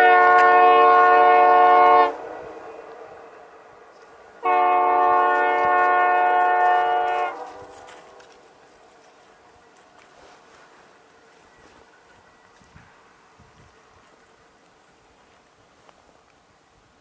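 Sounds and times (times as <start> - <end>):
locomotive air horn blasts: 0.0 - 2.8, 4.4 - 8.2.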